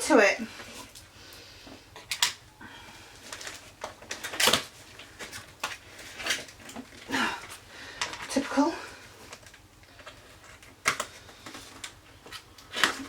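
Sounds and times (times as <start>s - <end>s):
packaging tearing and crinkling: 3.2s - 7.1s, 9.2s - 13.0s.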